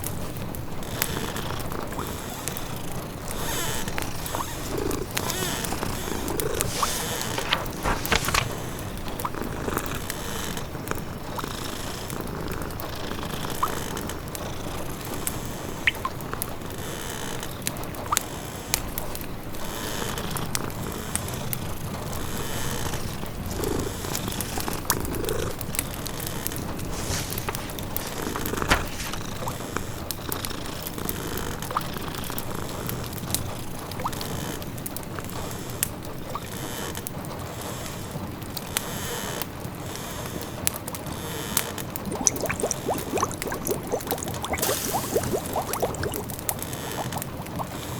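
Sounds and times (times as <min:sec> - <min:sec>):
wood fire crackling: 0:02.0 - 0:09.3, 0:25.7 - 0:29.6, 0:41.9 - 0:47.7
rain-like hiss: 0:03.5 - 0:08.8, 0:42.2 - 0:46.3
simmering pot bubbling: 0:12.1 - 0:16.6, 0:41.9 - 0:47.9
fire pops and snaps: 0:42.0 - 0:47.7.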